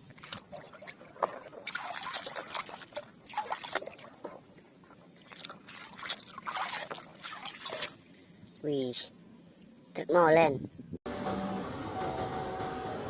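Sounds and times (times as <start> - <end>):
scrubbing: 0.0 - 8.1
splashing water: 0.0 - 8.2.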